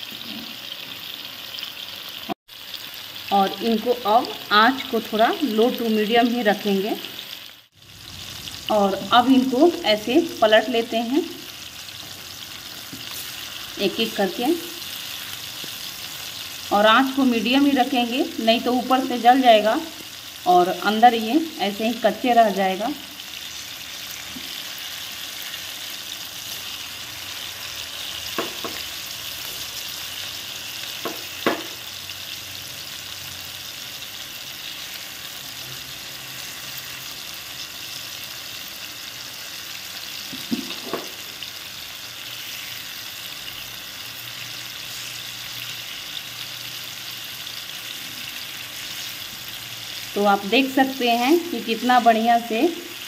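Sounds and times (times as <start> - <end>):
chicken sizzling in a pan: 0.0 - 53.0
spatula knocks on a pan: 31.0 - 31.8.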